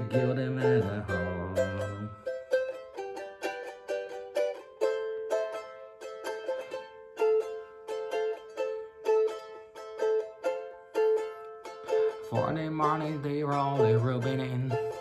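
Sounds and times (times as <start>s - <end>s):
ukulele strumming chords: 0.0s - 15.0s.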